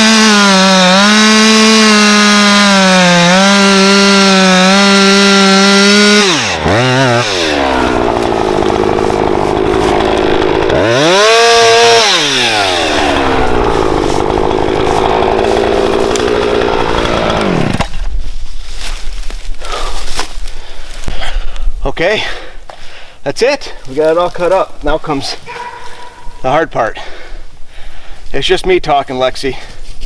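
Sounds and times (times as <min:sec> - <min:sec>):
chainsaw revving: 0:00.0 - 0:17.9
chainsaw cutting wood: 0:00.0 - 0:18.2.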